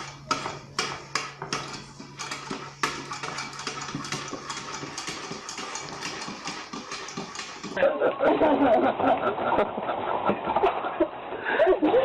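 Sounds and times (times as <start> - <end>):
sharp clicks and clattering knocks: 0.0 - 7.8.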